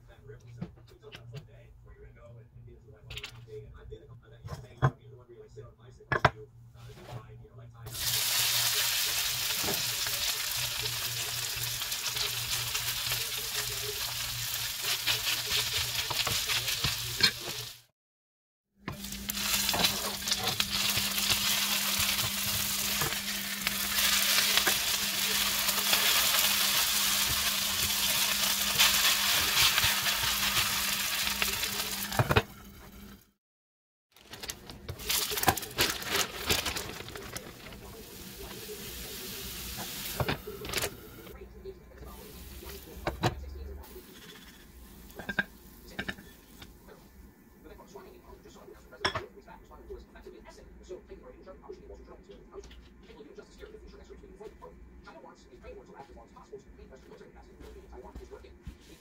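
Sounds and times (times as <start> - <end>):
potatoes sizzling in oil: 7.9 - 17.9, 18.9 - 32.8, 37.7 - 40.6.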